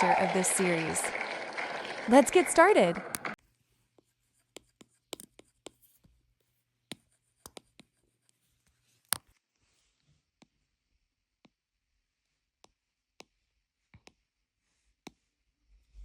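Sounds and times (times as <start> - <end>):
drawing tool tapping on paper: 4.0 - 5.8, 6.9 - 8.1, 12.6 - 14.2.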